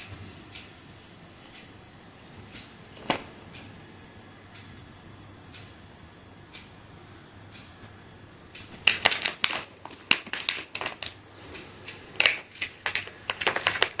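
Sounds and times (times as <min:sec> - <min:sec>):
cat playing clicks and rustles: 0:08.6 - 0:14.0.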